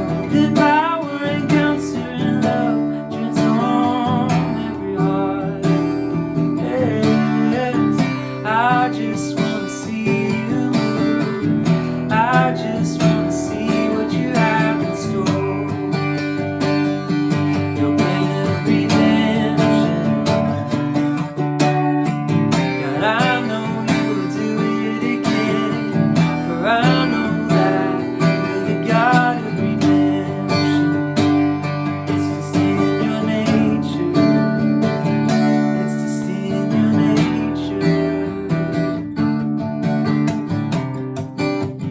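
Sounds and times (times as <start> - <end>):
acoustic guitar strumming chords: 0.0 - 41.9.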